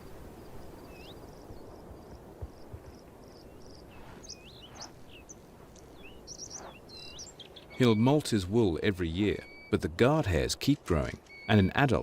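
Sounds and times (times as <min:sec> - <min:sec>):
steady background hiss: 0:00.0 - 0:12.0
bird calling: 0:03.4 - 0:08.4, 0:09.2 - 0:10.0.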